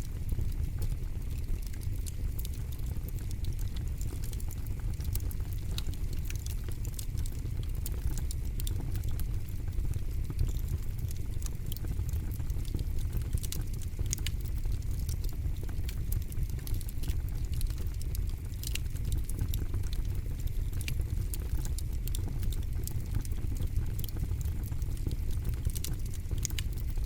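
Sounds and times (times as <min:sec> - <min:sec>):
campfire crackling and popping: 0:00.1 - 0:27.0.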